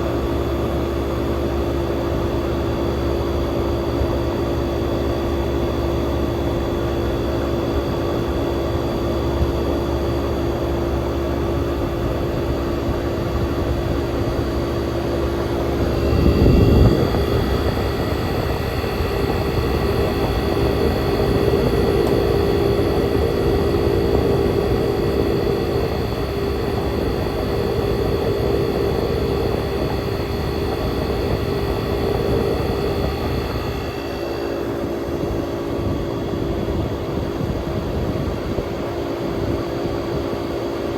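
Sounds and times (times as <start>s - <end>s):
air conditioner humming: 9.8s - 38.0s.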